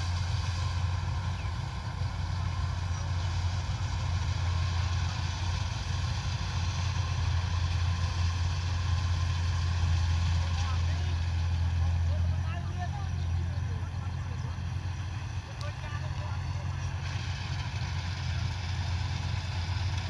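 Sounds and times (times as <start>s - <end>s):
combine harvester engine droning: 0.0s - 20.0s.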